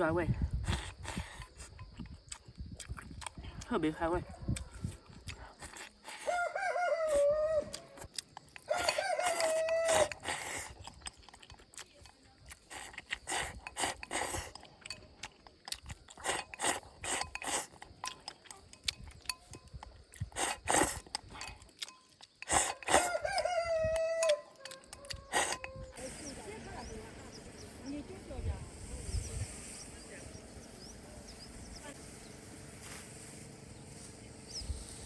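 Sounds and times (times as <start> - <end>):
rooster crowing: 6.3 - 8.0, 8.7 - 10.2, 22.9 - 26.0.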